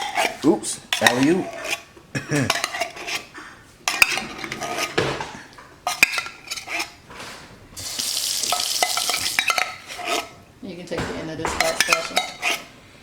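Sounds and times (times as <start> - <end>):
spoon scraping metal cookware: 3.9 - 5.0, 11.6 - 12.7
sharp knocks: 10.9 - 11.9.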